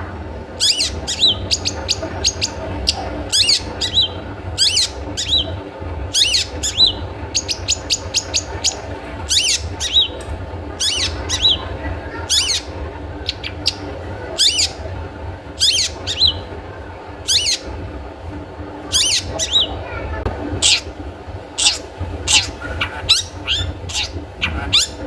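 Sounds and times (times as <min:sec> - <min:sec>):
steady low hum: 0:00.0 - 0:25.0
rapid ticking bird notes: 0:00.6 - 0:10.2, 0:21.6 - 0:25.0
bird giving harsh high calls: 0:10.8 - 0:11.6, 0:20.6 - 0:20.9, 0:21.6 - 0:25.0.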